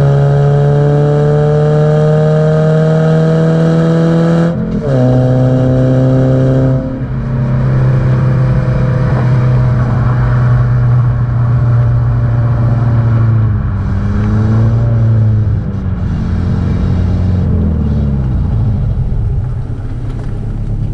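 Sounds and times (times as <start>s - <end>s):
car engine and exhaust running: 0.0s - 20.9s.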